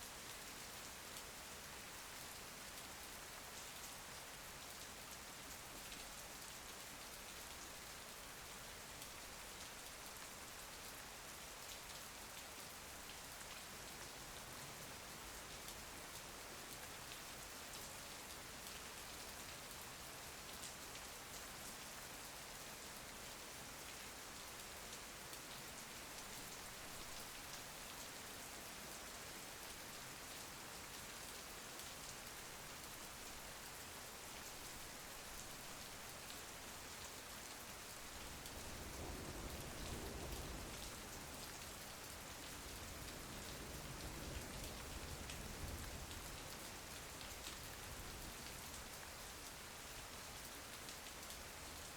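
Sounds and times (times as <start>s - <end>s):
rain pattering on a surface: 0.0s - 51.9s.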